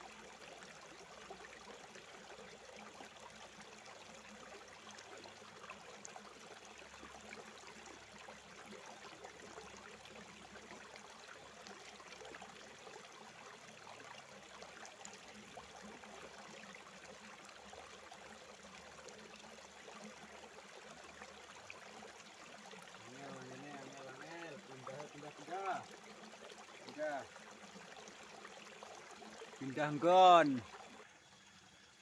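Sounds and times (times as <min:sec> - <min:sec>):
stream trickling over stones: 0:00.0 - 0:32.0.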